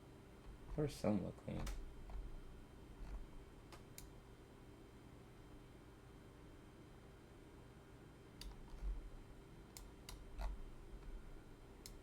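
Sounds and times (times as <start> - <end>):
faint steady hum: 0.0 - 12.0
computer mouse clicks: 8.4 - 9.0, 9.7 - 10.6.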